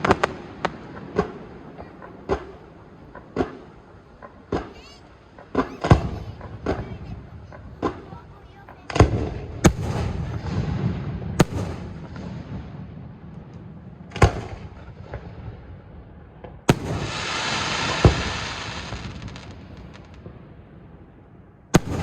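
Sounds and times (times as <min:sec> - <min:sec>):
crackling hiss of fireworks: 0:00.0 - 0:22.0
firework shells bursting: 0:16.7 - 0:20.4, 0:21.8 - 0:22.0.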